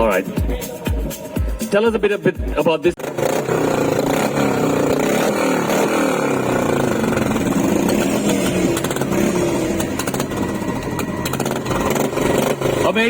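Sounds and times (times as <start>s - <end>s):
motorcycle engine revving: 3.0s - 13.0s.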